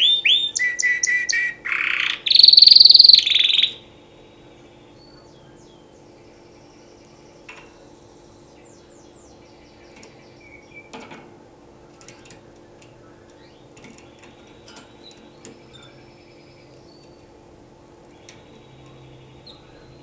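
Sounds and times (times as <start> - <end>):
canary whistles and chirps: 0.0 - 3.8.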